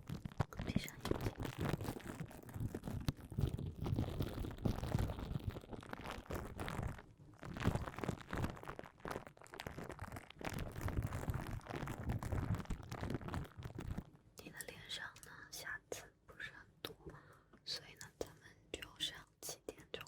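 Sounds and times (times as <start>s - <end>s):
crackling on microphone: 0.0s - 15.4s.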